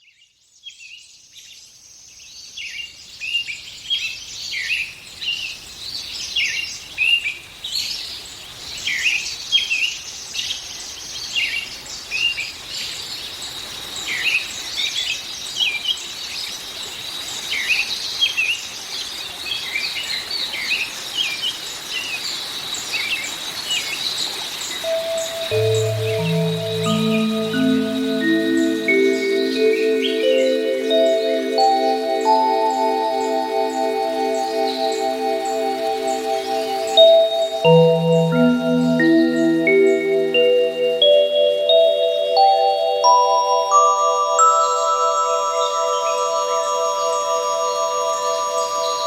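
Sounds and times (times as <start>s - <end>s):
background hiss: 4.4s - 49.0s
steady high tone: 24.9s - 49.0s.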